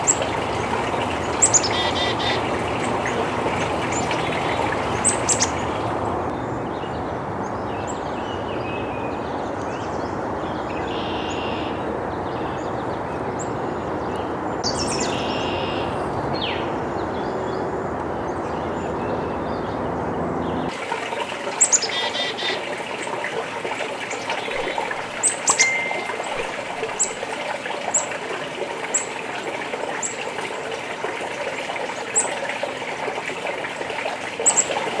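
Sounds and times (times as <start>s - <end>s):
chickadees calling: 0.0s - 6.3s, 10.6s - 20.8s, 24.1s - 27.2s, 34.4s - 35.0s.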